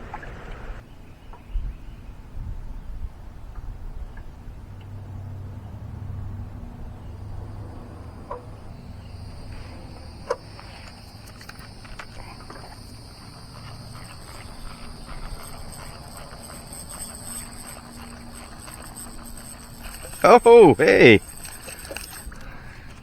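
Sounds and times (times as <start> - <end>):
insects droning: 5.3 - 23.0.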